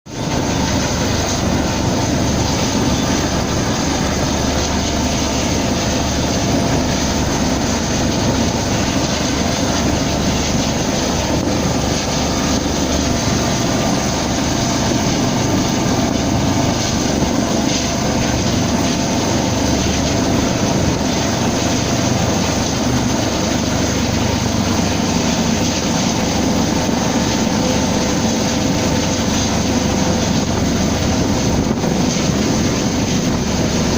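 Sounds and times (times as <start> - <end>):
helicopter rotor and turbine: 0.1 - 33.9.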